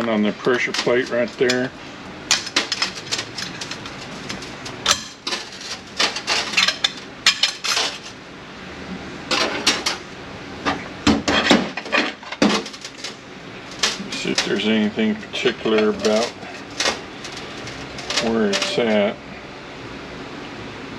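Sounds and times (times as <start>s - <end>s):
metal parts clinking: 2.3s - 8.2s, 11.3s - 14.7s, 15.7s - 19.1s.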